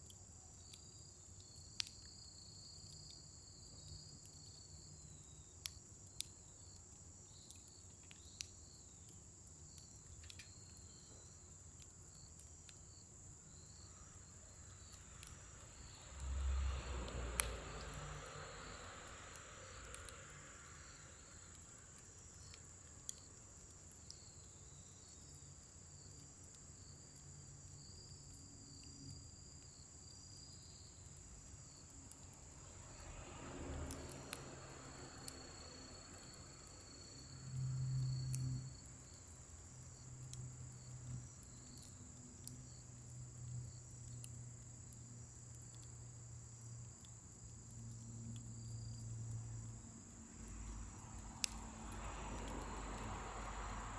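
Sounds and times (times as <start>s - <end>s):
crickets trilling: 0.0s - 53.9s
fire crackling: 0.0s - 53.9s.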